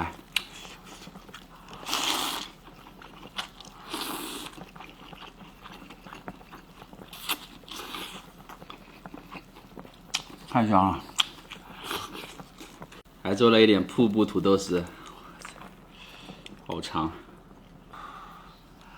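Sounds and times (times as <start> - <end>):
close chewing: 0.0 - 13.1, 13.9 - 18.9.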